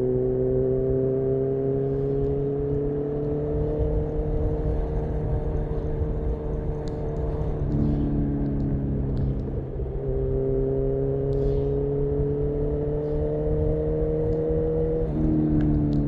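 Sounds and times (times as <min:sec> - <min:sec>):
low wind rumble: 0:00.0 - 0:16.0
motorcycle engine accelerating: 0:00.0 - 0:16.0.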